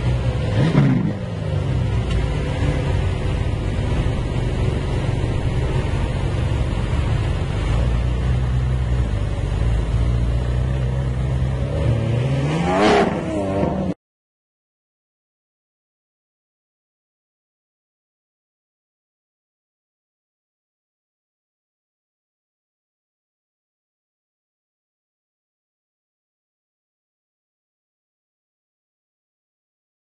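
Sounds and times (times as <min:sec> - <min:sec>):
sports car engine revving: 0:00.0 - 0:14.0.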